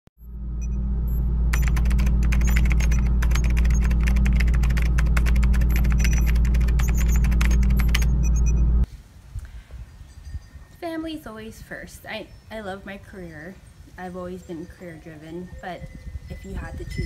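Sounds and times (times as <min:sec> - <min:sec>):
high-pitched blips: 0:00.2 - 0:08.9
steady low drone: 0:00.2 - 0:08.9.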